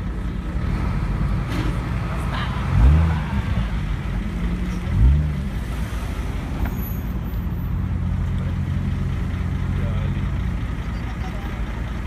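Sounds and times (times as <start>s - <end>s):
car engine idling: 0.0s - 12.0s
engine revving: 0.6s - 6.5s.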